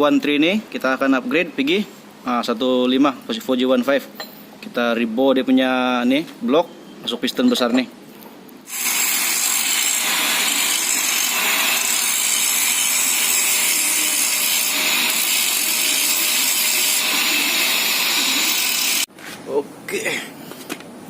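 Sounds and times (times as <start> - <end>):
boring machine cutting metal: 8.7 - 19.1.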